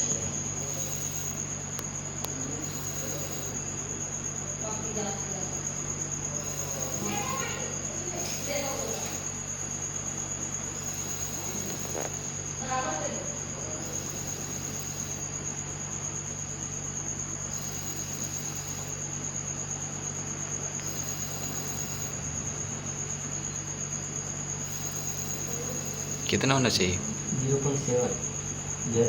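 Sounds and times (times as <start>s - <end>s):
high-pitched whine: 0.0s - 1.6s, 2.2s - 4.0s, 6.4s - 9.4s, 10.6s - 16.4s, 17.4s - 19.1s, 20.0s - 29.0s
refrigerator compressor humming: 0.0s - 29.0s.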